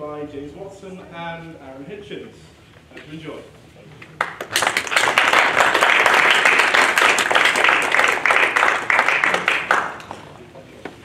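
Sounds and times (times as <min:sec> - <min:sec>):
audience applauding: 0:04.2 - 0:10.3.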